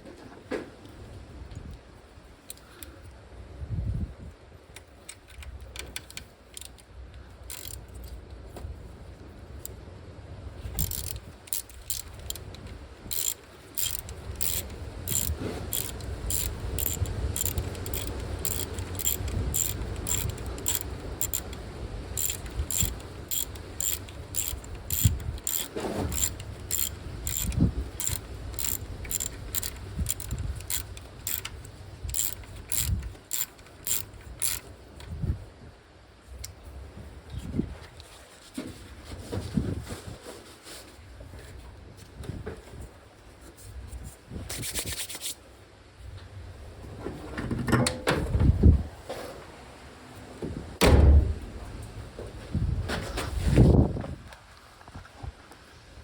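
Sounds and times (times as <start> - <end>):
ratchet wrench clicking: 5.3 - 6.9, 7.5 - 8.0, 10.8 - 34.7.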